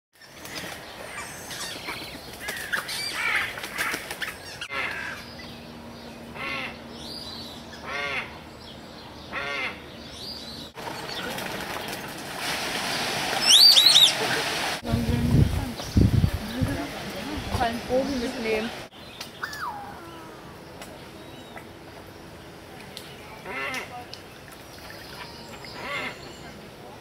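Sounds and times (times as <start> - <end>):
aviary birds chirping: 0.2 - 12.0, 15.3 - 27.0
sharp high bird calls: 13.4 - 14.2, 19.2 - 20.4.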